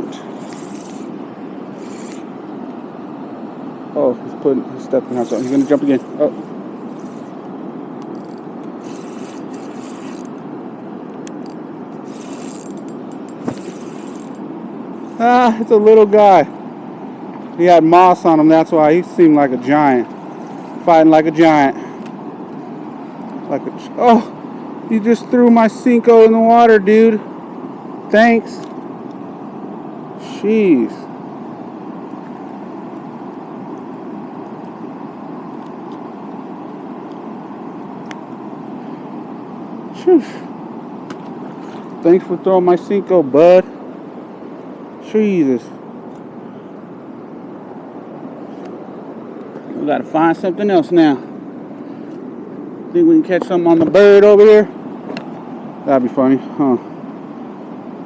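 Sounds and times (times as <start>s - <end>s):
river rushing: 0.0s - 26.6s
scraping sounds: 0.1s - 2.3s, 5.1s - 7.4s, 8.2s - 10.3s, 12.0s - 14.4s.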